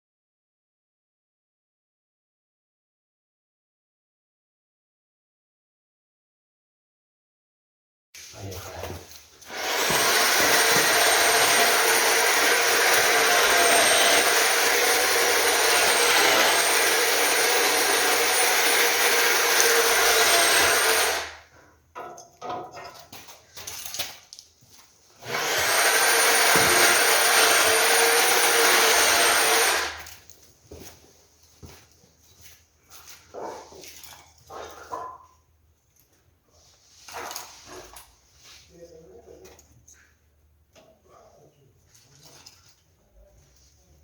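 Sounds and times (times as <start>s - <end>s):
power tool motor whine: 9.5s - 21.4s, 25.2s - 30.0s.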